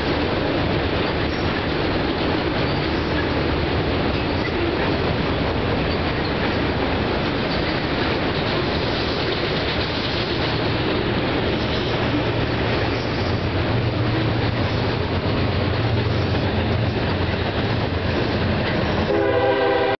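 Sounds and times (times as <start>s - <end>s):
freight train wheels rumbling on rail: 0.0s - 20.0s.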